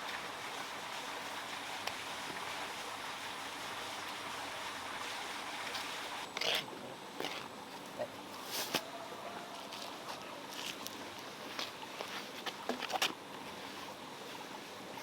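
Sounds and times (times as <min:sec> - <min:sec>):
flowing water rushing: 0:00.0 - 0:06.3.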